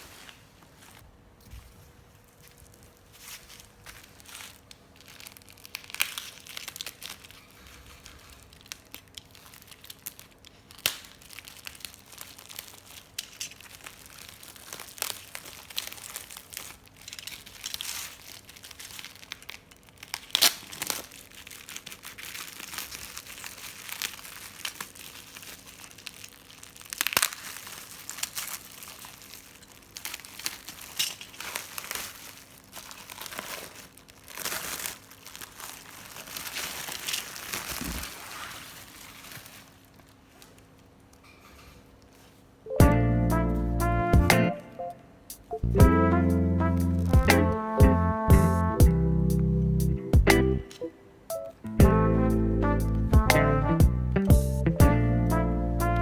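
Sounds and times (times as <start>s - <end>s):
plastic packaging crinkling: 0.0s - 42.6s.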